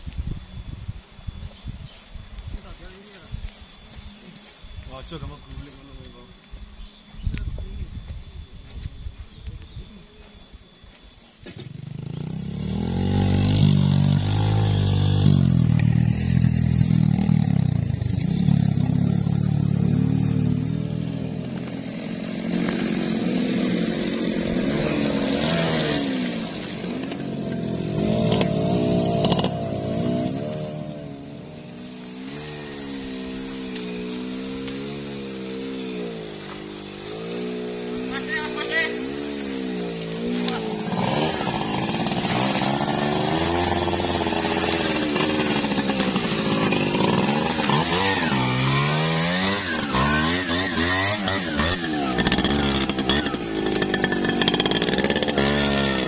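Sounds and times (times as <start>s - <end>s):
chainsaw engine revving: 11.6s - 56.0s.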